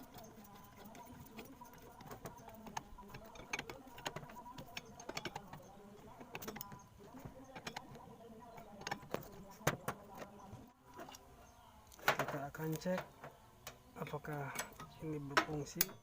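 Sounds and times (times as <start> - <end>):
small parts clicking and tapping: 0.0 - 10.4.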